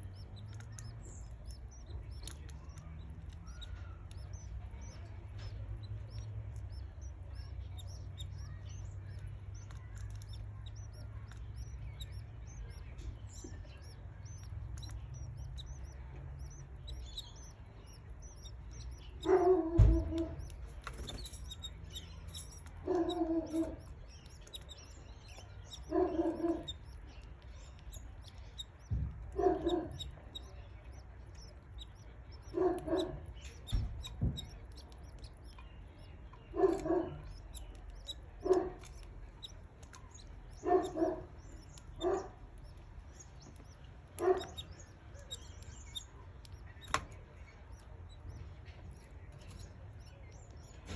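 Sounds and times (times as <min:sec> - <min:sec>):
chicks chirping: 0:00.0 - 0:50.9.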